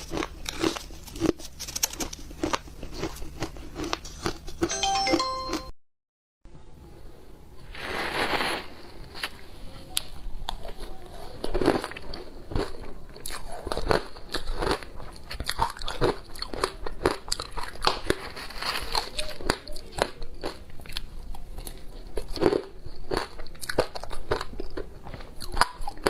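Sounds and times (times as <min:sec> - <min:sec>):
crisp cracks and crunches: 0:00.0 - 0:04.6, 0:11.4 - 0:22.5
ice being chewed: 0:00.0 - 0:04.8, 0:11.3 - 0:26.0.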